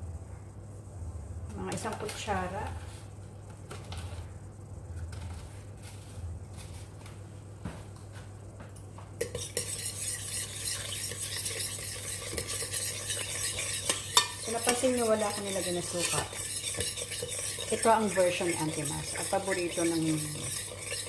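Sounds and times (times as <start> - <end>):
spoon stirring in a bowl: 9.2 - 21.0
spoon clinking against bowl: 12.2 - 21.0.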